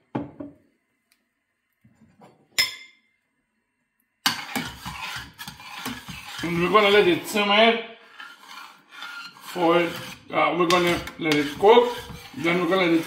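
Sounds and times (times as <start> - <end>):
kitchenware clinking: 2.1 - 3.1
spoon scraping and stirring in pot: 4.2 - 13.0.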